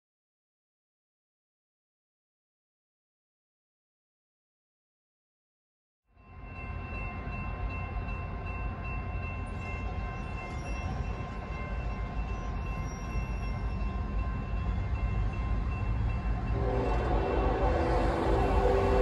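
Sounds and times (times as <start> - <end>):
freight train rumbling: 6.2 - 19.0.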